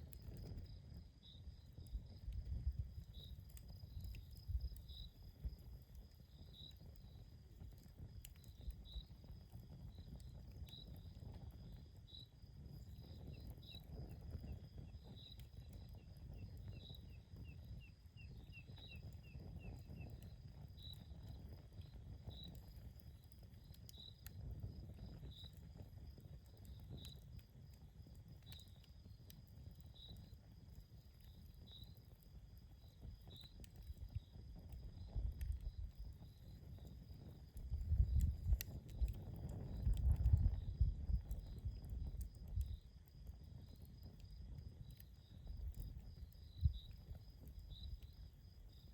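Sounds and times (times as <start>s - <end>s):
campfire crackling: 0.0s - 48.9s
insect chirping: 3.1s - 5.6s, 12.1s - 21.0s, 45.2s - 48.9s.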